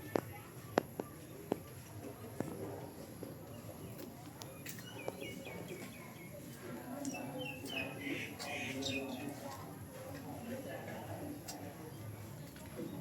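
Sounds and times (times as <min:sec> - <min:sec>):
distant murmur of voices: 0:00.0 - 0:13.0
bird chirping: 0:07.0 - 0:09.4.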